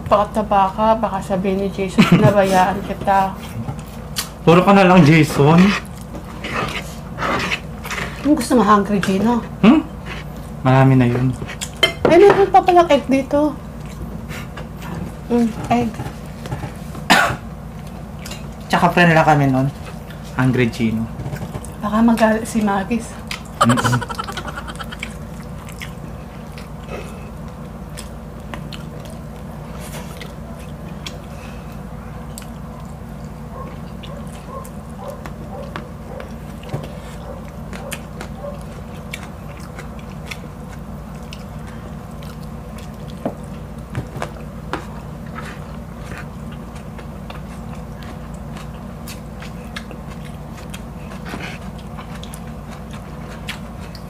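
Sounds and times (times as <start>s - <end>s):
steady low hum: 0.0s - 54.0s
chewing and biting food: 5.4s - 10.6s, 11.2s - 11.8s, 23.1s - 54.0s.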